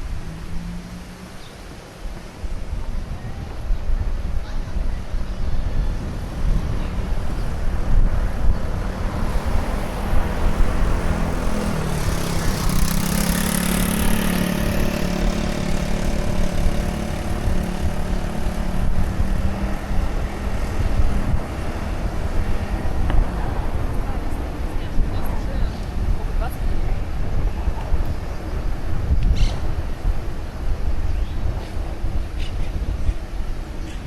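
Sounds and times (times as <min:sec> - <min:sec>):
wind rumbling on microphone: 0:00.0 - 0:34.0
motor engine passing by: 0:05.7 - 0:30.7.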